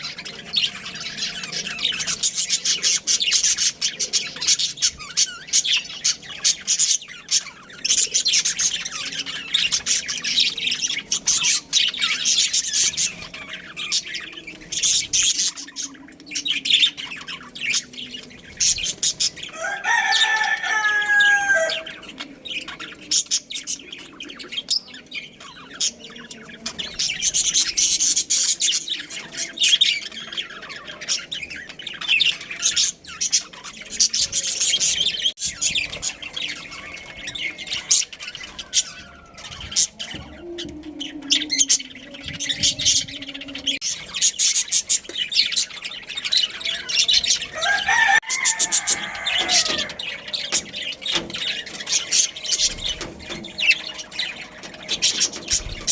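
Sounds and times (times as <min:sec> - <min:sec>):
budgerigars chirping: 0:00.0 - 0:55.9
rooster crowing: 0:19.4 - 0:22.1, 0:36.8 - 0:41.8, 0:46.6 - 0:55.2.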